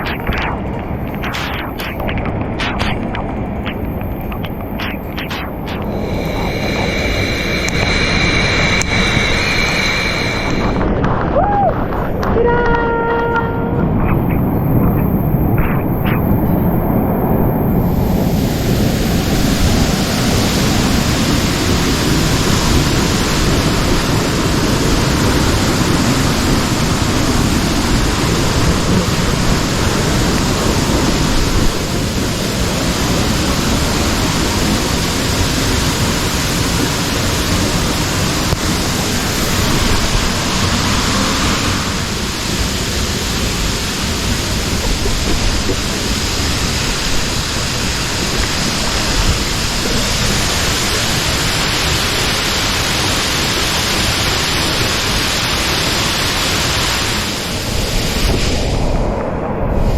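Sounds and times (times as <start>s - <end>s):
waterfall rushing: 0.0s - 12.1s, 18.2s - 58.4s
pouring rain: 18.0s - 58.6s.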